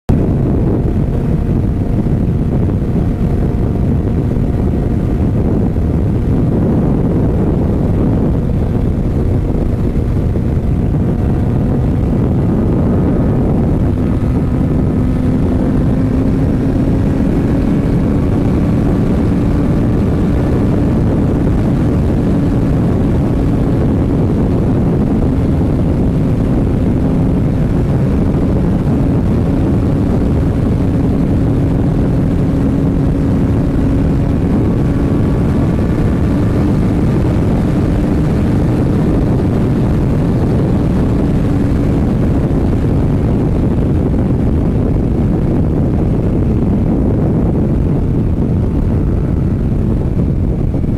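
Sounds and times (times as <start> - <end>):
heavy wind roar: 0.0 - 50.9
motorcycle engine droning: 0.0 - 50.9.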